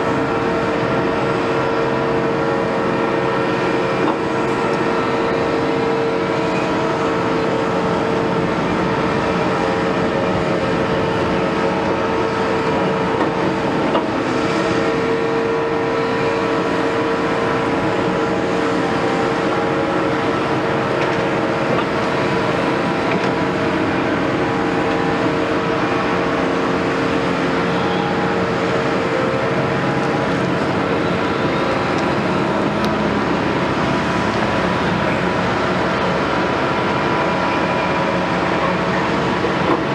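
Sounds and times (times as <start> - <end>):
excavator diesel engine running: 0.0 - 39.9
steady whine: 0.0 - 39.9.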